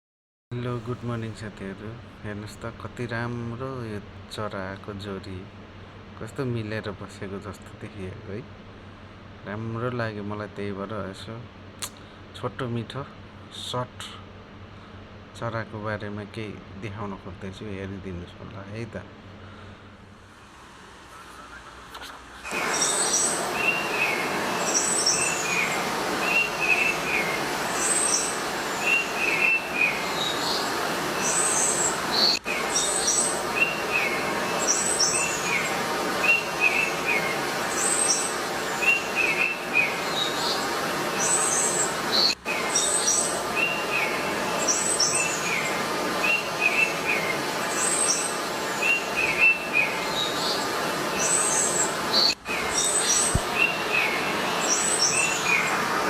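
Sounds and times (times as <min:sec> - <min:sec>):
steady hiss: 0:00.6 - 0:10.3, 0:18.6 - 0:56.0
birds chirping: 0:21.1 - 0:56.0
thin high bird calls: 0:21.1 - 0:56.0.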